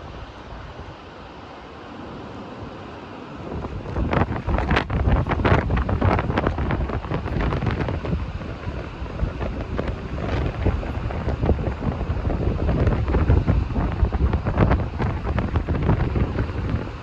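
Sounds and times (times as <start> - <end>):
gusty wind buffeting microphone: 0.0 - 17.0.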